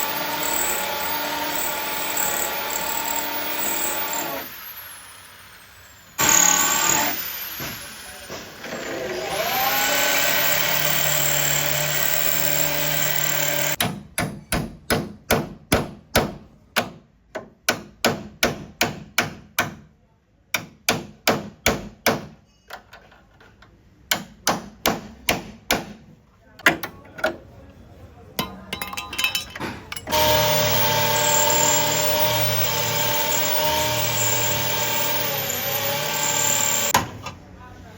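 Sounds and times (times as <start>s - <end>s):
power tool spinning: 0.0s - 13.8s, 30.0s - 37.0s.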